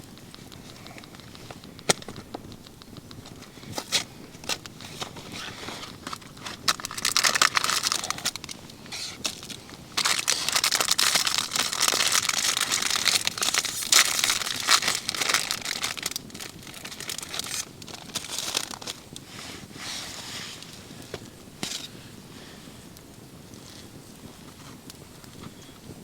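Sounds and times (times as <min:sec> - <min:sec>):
crinkling rustling handling noise: 0:00.0 - 0:26.0.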